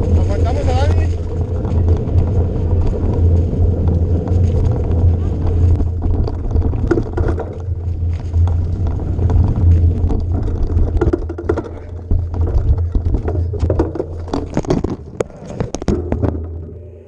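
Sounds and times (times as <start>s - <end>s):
vehicle engine rumbling: 0.0s - 17.0s
clicks and knocks: 10.0s - 16.8s.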